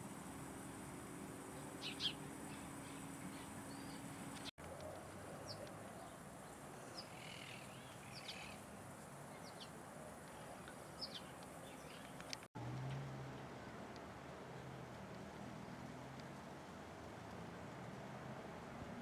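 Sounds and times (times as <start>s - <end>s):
faint outdoor hiss: 0.0s - 19.0s
small birds chirping: 1.5s - 12.5s.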